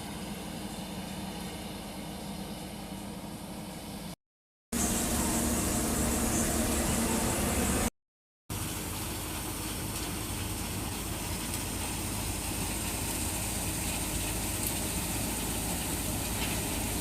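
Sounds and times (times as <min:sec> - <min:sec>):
harvesting machine running: 0:04.8 - 0:07.9.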